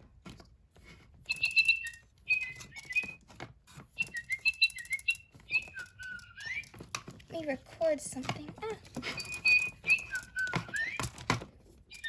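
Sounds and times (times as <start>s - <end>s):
electronic toy bird tweeting: 1.2s - 3.2s, 3.8s - 6.8s, 9.0s - 11.3s.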